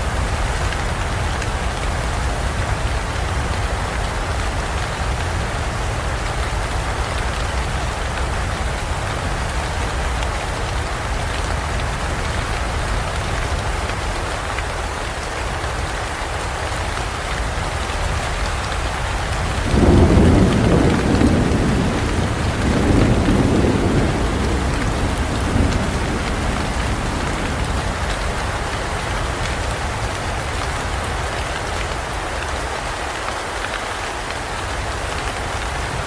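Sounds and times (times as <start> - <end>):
rain falling in forest: 0.0 - 36.0
loud low thunder rumble: 19.5 - 29.5.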